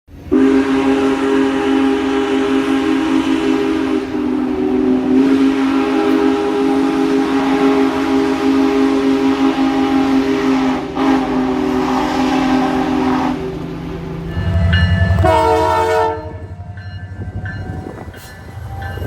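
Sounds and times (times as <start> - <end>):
locomotive air horn chord: 0.1 - 18.1.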